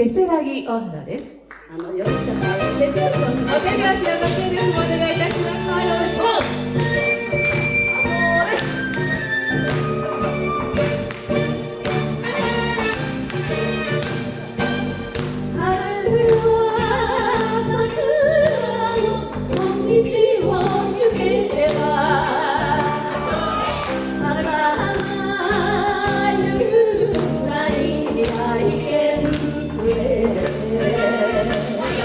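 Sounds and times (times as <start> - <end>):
live band with horns: 2.1 - 15.8, 22.2 - 24.6, 30.7 - 32.0.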